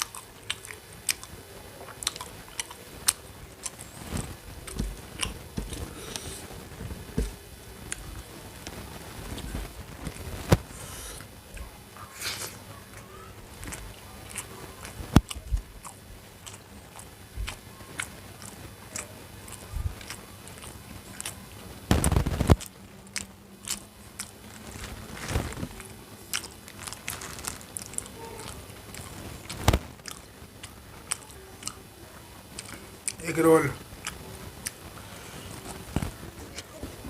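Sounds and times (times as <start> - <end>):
person chewing food: 0.0 - 31.8, 32.5 - 36.8
crunchy bite: 1.9 - 6.4, 13.6 - 31.8.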